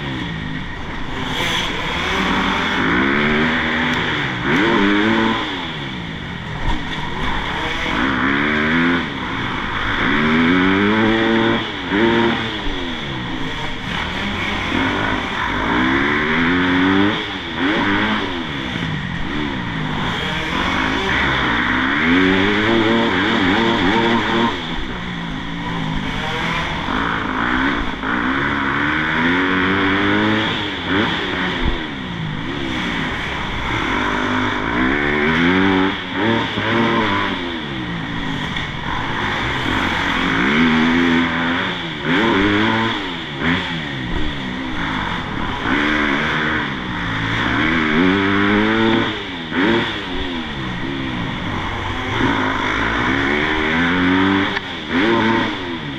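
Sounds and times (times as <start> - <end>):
motocross bike engines revving: 0.0 - 55.9.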